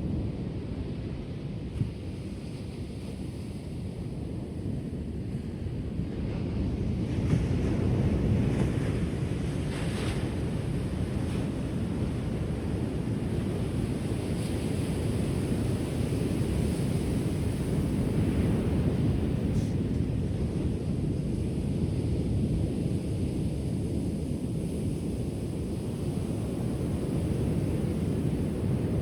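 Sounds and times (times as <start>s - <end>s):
waves washing on shore: 6.4s - 29.0s.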